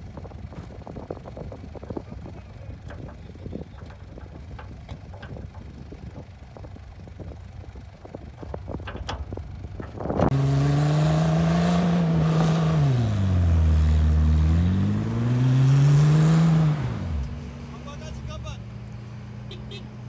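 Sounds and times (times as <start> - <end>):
knocks: 2.8 - 6.7
vehicle engine revving hard: 10.1 - 18.0.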